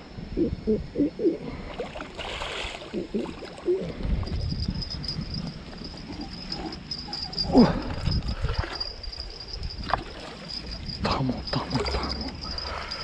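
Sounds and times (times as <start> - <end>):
crickets chirping: 0.0 - 13.0
man murmuring: 11.0 - 12.9.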